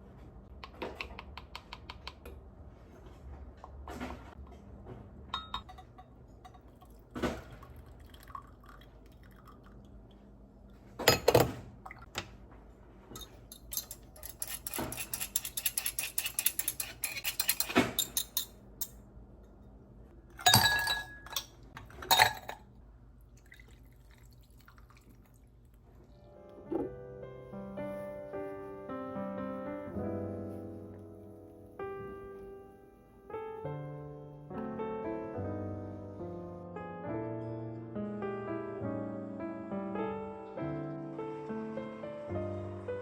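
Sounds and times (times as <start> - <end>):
dishes and glassware clinking: 5.3 - 7.4, 11.0 - 11.6, 13.1 - 19.6, 20.4 - 22.7
dishes clattering: 5.3 - 7.6, 11.0 - 11.6, 20.4 - 22.7.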